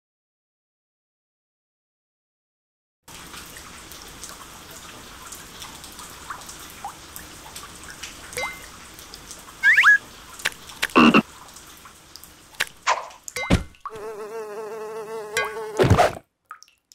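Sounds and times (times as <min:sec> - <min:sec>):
trickling dripping water: 0:03.1 - 0:15.8, 0:16.4 - 0:16.9
brief pitched cry: 0:09.6 - 0:10.0
small chirps: 0:09.6 - 0:10.0, 0:10.8 - 0:11.2.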